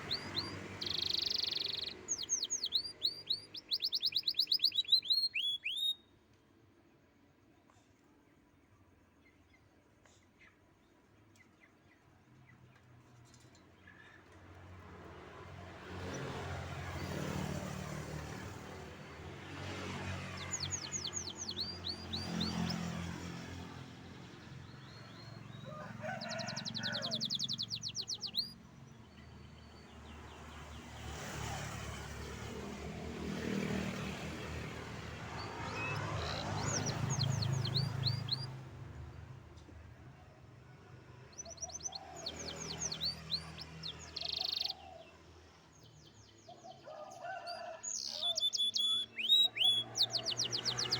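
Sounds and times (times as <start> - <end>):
road traffic passing: 0.0 - 5.9, 13.4 - 50.9
canary singing: 0.0 - 6.1, 20.2 - 23.1, 24.6 - 28.6, 35.3 - 38.6, 41.4 - 44.8, 47.6 - 50.9.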